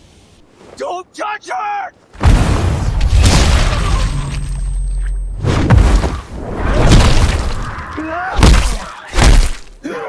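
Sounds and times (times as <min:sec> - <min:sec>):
heavy fight impacts: 0:05.4 - 0:09.8.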